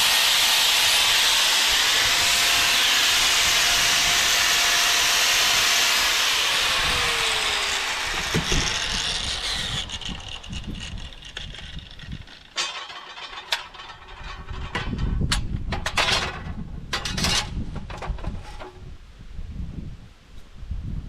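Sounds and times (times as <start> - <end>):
steel bars knocking and clattering: 8.4 - 18.7.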